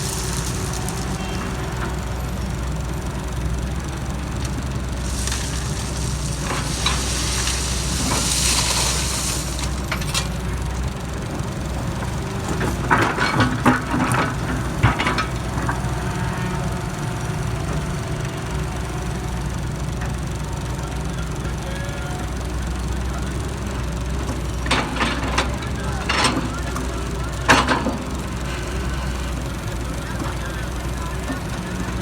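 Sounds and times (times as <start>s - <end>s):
diesel engine running: 0.0s - 32.0s
hiss: 5.1s - 9.8s
metal clanks and knocks: 12.5s - 15.9s.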